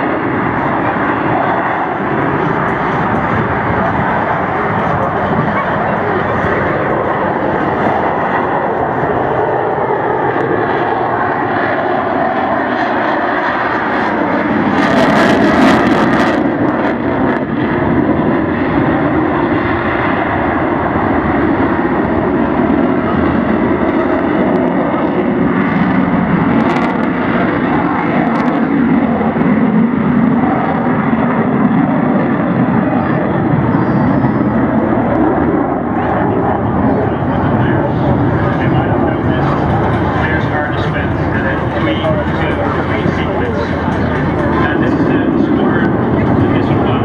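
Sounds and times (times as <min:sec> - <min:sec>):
jet engine roaring overhead: 0:00.0 - 0:47.0.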